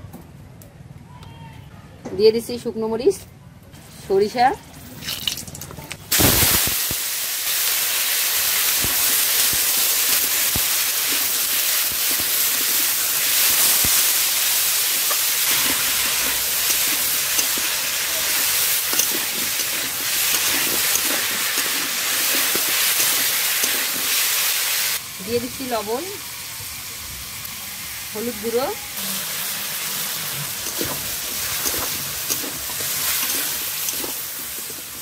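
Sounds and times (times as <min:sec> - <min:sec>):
food frying in hot oil: 0:06.1 - 0:35.0
spatula stirring in pan: 0:08.8 - 0:24.3, 0:30.0 - 0:35.0.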